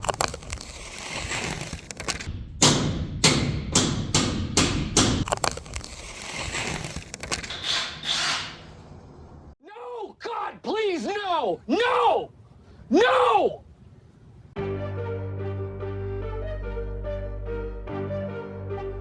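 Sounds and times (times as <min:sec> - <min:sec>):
heavy thumps: 0:00.0 - 0:09.5.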